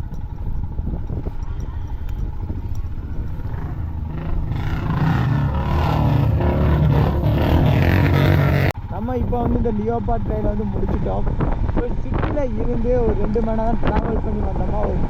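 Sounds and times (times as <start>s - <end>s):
motorcycle engine running: 0.0s - 15.0s
rushing noise: 3.4s - 8.7s.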